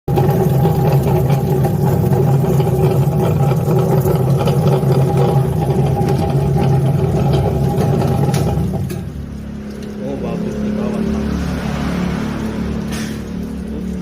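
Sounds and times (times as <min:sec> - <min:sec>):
potato peeling machine humming: 0:00.1 - 0:09.1.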